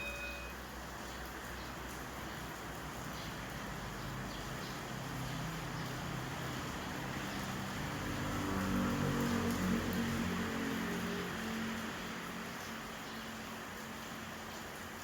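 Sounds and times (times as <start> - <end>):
rain and wind hiss: 0.1 - 15.0.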